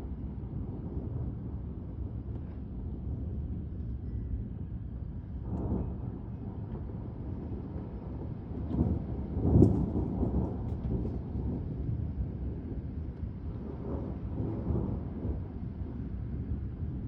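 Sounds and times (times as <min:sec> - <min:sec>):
thunder rumbling: 0:05.5 - 0:17.0.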